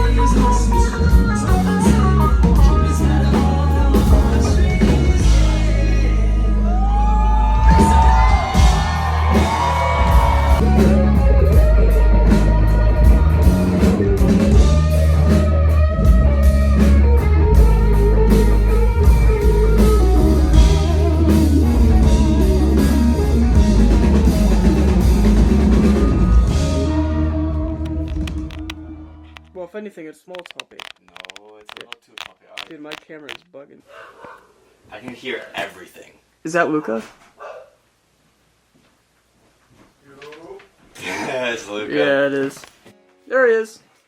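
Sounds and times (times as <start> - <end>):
person singing: 0.0 - 15.2
rock music: 0.0 - 29.5.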